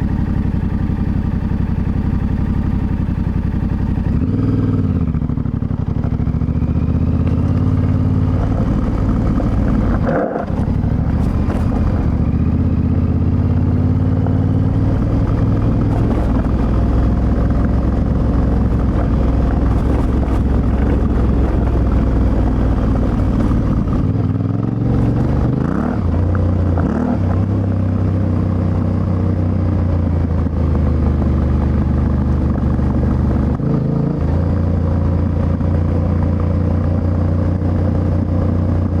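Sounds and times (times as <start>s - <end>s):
motorcycle engine pulling: 5.4s - 26.3s.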